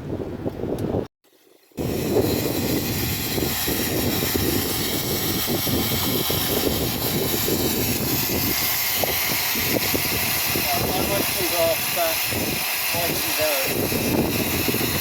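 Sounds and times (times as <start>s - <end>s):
miniature train rumbling: 1.8s - 15.0s.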